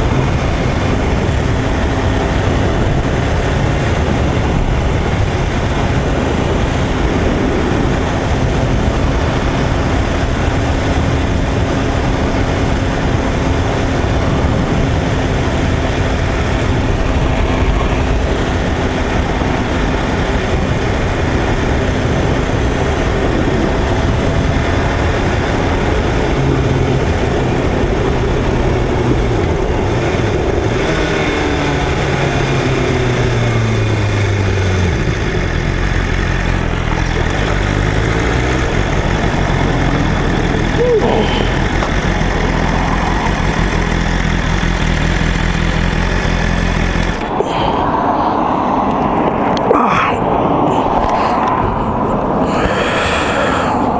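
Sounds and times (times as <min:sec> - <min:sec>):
motorcycle engine running: 0:00.0 - 0:50.1
wind rush over microphone: 0:00.0 - 0:53.9.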